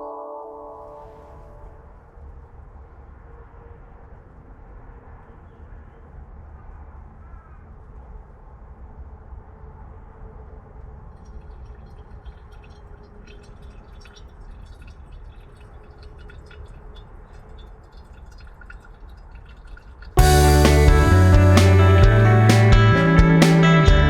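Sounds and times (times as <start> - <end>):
pot bubbling: 11.3 - 21.8
steady low rumble: 20.2 - 24.0.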